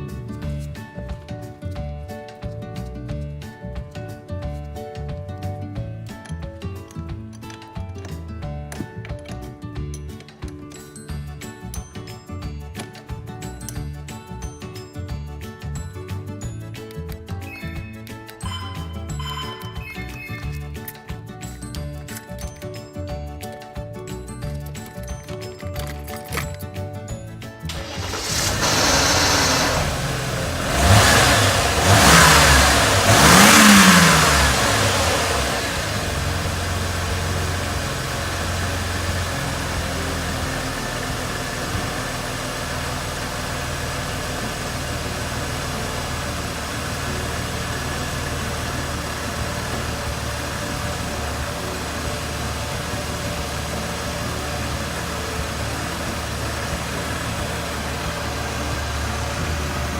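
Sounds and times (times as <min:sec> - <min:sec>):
car engine idling: 0:27.7 - 0:59.9
car engine revving: 0:27.7 - 0:59.9.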